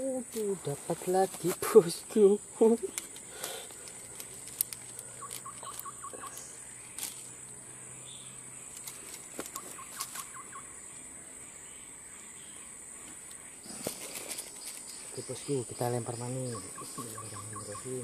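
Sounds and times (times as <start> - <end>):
bird calling: 0.0 - 18.0
high insect buzz: 0.0 - 18.0.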